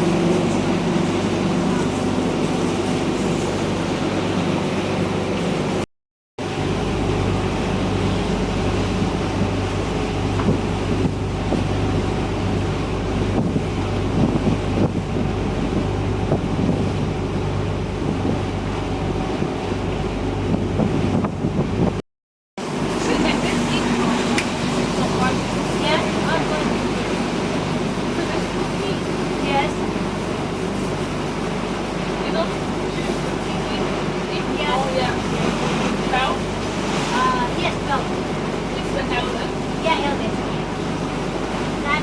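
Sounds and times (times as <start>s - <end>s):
water rushing past hull: 0.0s - 5.8s, 6.4s - 22.0s, 22.6s - 42.0s
boat engine droning: 0.0s - 22.0s, 22.6s - 42.0s
wind buffeting microphone: 7.2s - 22.0s.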